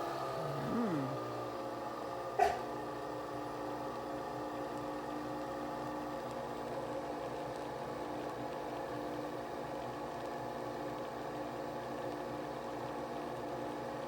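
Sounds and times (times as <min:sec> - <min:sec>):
coffee machine motor humming: 0:00.0 - 0:09.9.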